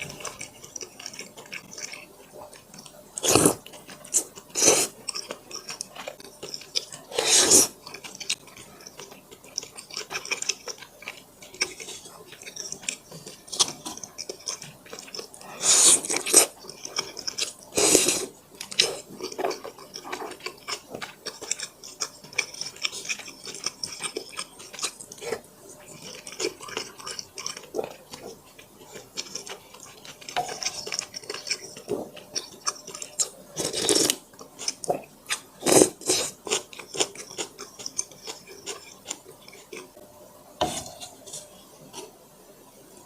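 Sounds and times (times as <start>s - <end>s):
wet chewing mouth sounds: 0.0s - 40.0s.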